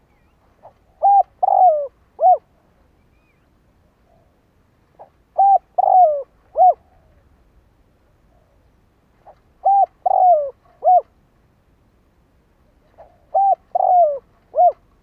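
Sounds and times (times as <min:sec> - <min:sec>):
dove cooing: 0:00.0 - 0:02.5, 0:05.0 - 0:07.3, 0:09.2 - 0:11.1, 0:12.7 - 0:15.0.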